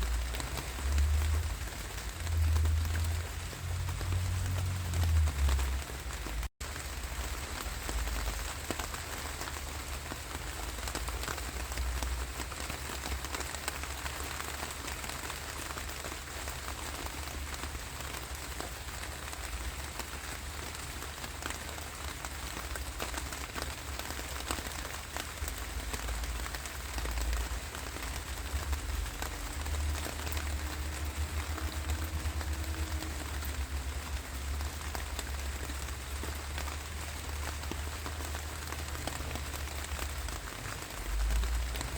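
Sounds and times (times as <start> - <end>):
constant low rumble: 0.0 - 41.9
steady rainfall: 0.0 - 41.9.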